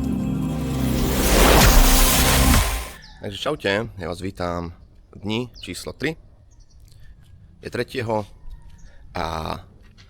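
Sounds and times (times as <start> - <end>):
background music with low chords: 0.0 - 3.0
rising whoosh sweep: 0.0 - 3.0.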